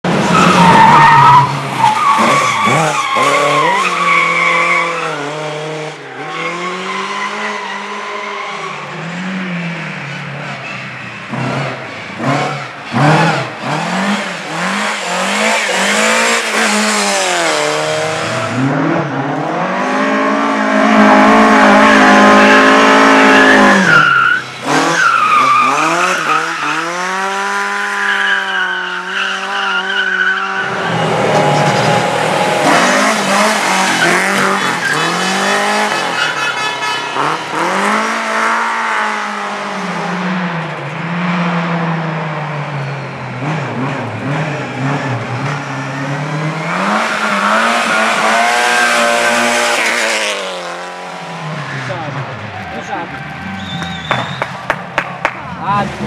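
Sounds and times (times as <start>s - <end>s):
racing car engines revving: 0.0s - 56.0s.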